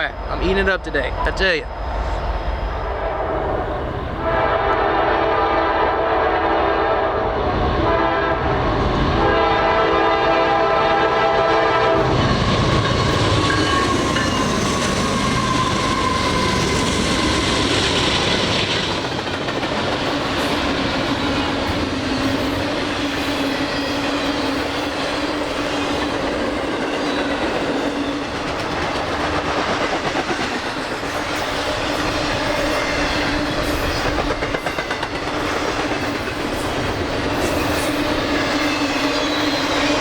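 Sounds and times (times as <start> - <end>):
locomotive air horn blasts: 4.2 - 7.2, 7.8 - 8.6, 9.2 - 13.9
train wheels on rails: 11.6 - 40.0.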